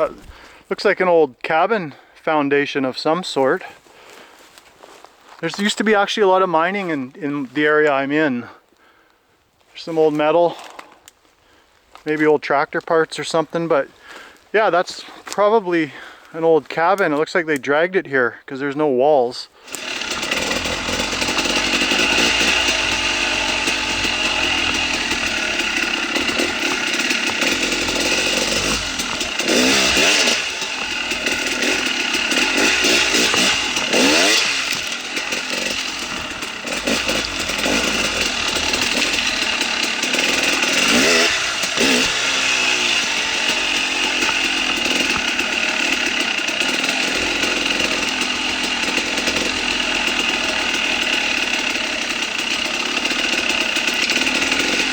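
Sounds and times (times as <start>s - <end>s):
dirt bike engine revving: 0.0s - 0.4s, 19.7s - 54.9s.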